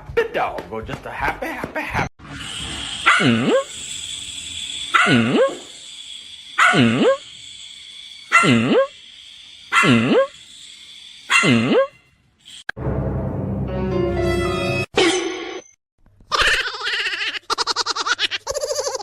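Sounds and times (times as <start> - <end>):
dog barking: 3.0 - 3.6, 4.9 - 5.6, 6.6 - 7.2, 8.3 - 8.6, 11.3 - 11.9.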